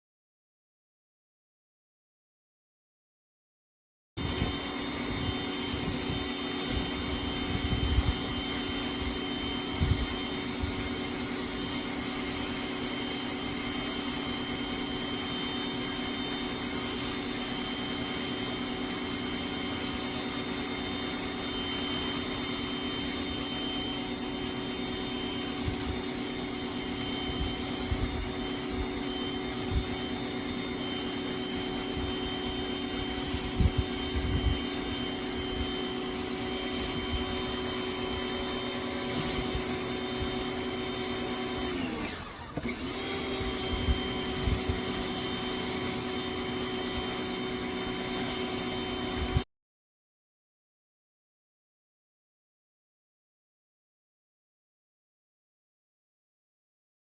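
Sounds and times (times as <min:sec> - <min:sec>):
pressure washer whine and hiss: 0:04.2 - 0:49.4.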